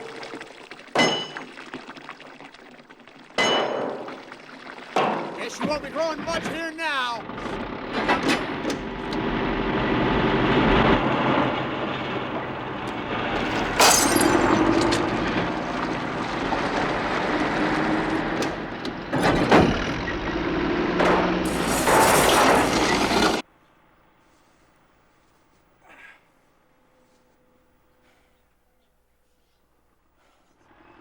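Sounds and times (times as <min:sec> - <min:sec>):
tractor engine under load: 0:05.0 - 0:23.4
crashes of things smashing: 0:13.3 - 0:19.8, 0:21.0 - 0:23.4.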